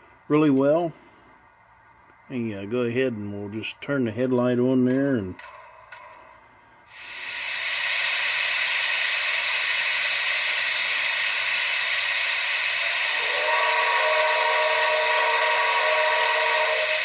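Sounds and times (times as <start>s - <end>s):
multi-tone steam whistle: 6.9s - 17.0s
steam hiss from small speaker: 6.9s - 17.0s.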